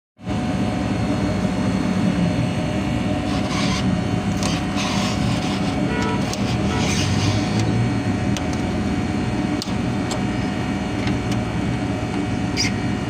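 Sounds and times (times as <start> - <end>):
low machine hum: 0.2 - 13.0
rubbing or scraping noises: 3.2 - 7.6.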